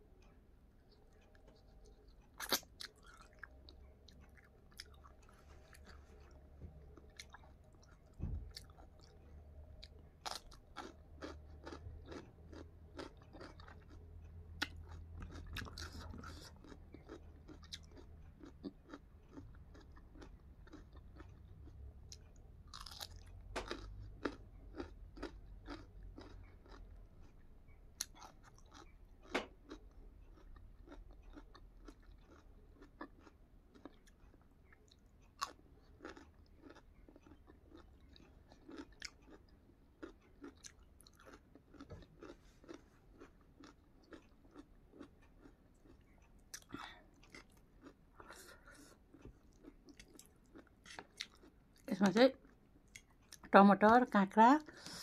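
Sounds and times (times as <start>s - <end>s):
chewing and crunching food: 0.2s - 55.0s.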